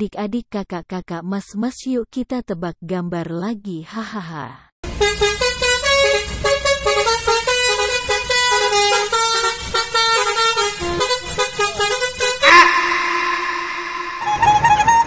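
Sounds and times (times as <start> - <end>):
tune played on vehicle horns: 4.8 - 15.0.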